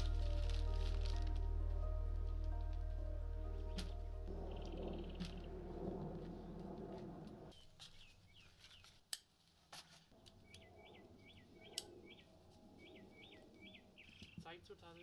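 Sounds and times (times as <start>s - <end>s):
soft background music: 0.0s - 6.1s
small bird chirping: 10.4s - 14.6s.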